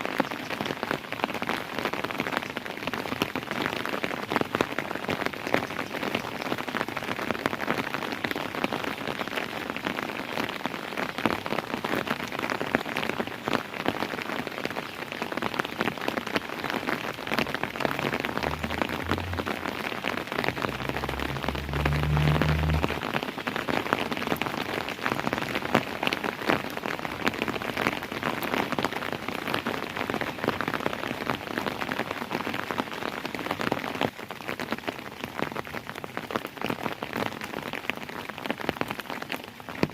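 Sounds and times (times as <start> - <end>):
rain on a hard surface: 0.0 - 39.9
brief low rumble: 17.7 - 23.1.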